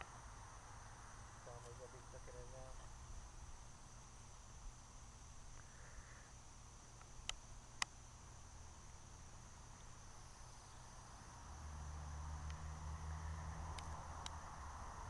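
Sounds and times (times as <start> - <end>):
crickets chirring: 0.0 - 15.0
sharp clicks: 7.0 - 8.0.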